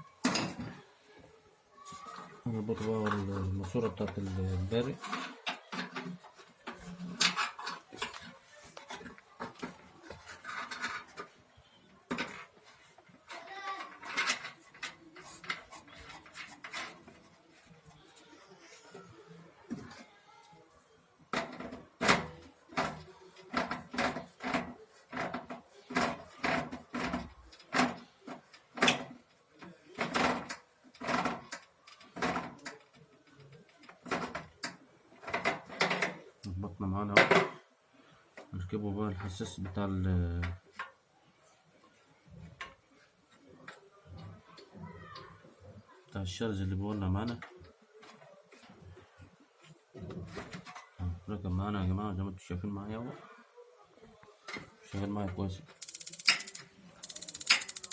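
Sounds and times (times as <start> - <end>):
tools scraping: 1.8 - 19.0, 55.7 - 57.9
tools knocking and scraping metal: 2.8 - 17.6, 21.3 - 36.2, 55.8 - 57.9
metallic clicks and taps: 55.8 - 57.9.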